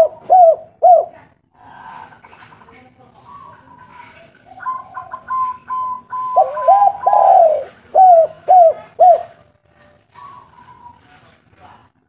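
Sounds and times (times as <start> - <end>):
dove cooing: 0.0 - 2.3, 3.2 - 9.5.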